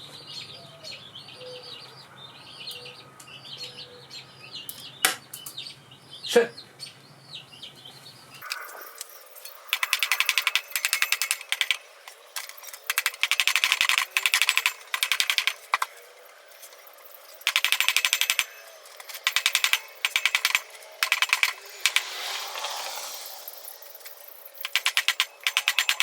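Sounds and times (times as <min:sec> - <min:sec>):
ratchet wrench clicking: 0:08.4 - 0:26.0.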